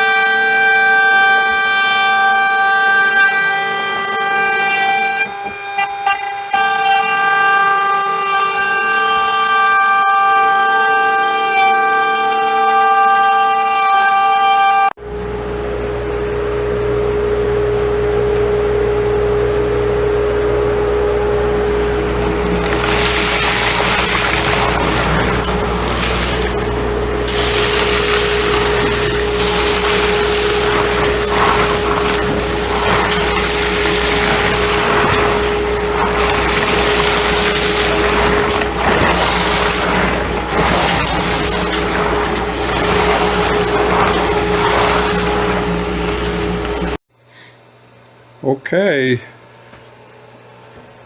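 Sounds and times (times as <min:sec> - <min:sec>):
milling machine whining: 0:15.6 - 0:47.0.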